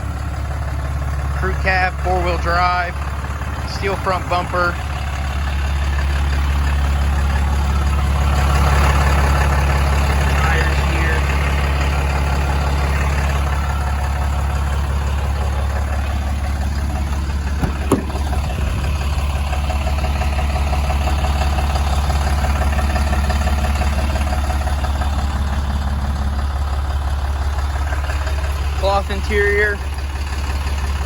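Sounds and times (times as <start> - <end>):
diesel engine idling: 0.0 - 31.0
brief knock: 17.6 - 18.5.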